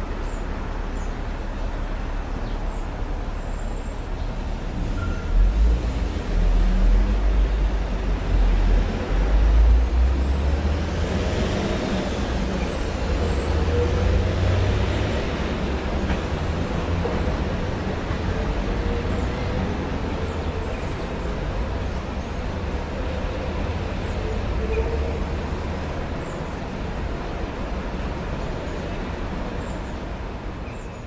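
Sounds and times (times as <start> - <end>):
traffic rumble: 0.0 - 31.0.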